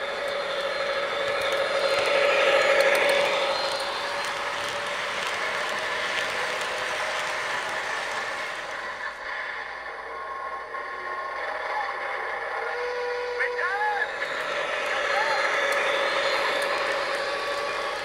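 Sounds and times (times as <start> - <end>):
model train clattering on track: 0.0 - 9.2, 12.6 - 18.0.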